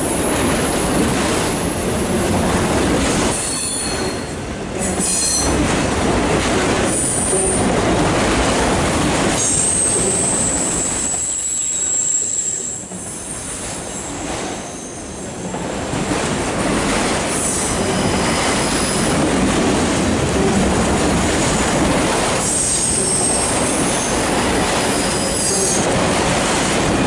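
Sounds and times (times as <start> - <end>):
steel wheels rumbling on rail: 0.0 - 27.0
high-pitched wheel squeal: 9.6 - 12.9.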